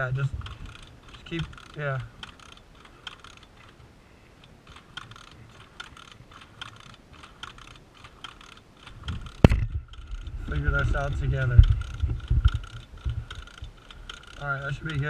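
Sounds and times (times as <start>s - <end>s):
kick-start clicking: 4.4s - 15.0s.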